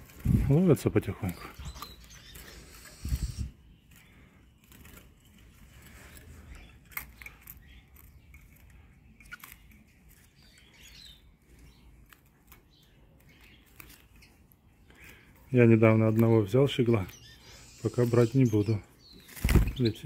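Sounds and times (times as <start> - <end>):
faint bird chirps: 1.2 - 12.0, 16.4 - 20.0.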